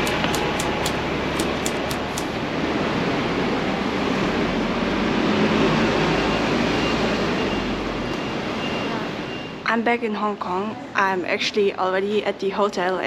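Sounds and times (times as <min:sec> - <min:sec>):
quick light ticks: 0:00.0 - 0:02.4.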